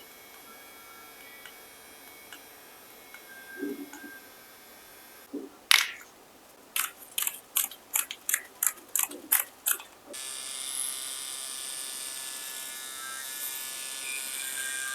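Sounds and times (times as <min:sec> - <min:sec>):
sharp plastic clicks: 0:05.7 - 0:06.1, 0:06.7 - 0:10.1
tattoo pen buzzing: 0:06.8 - 0:14.9.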